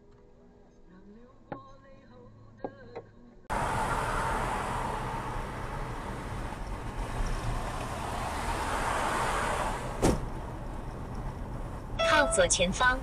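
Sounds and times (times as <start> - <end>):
car road noise: 3.5 - 13.0.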